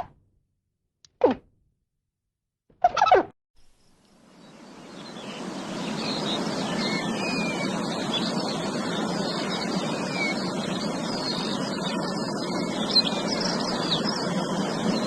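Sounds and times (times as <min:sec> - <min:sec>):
small birds chirping: 0:03.6 - 0:15.0.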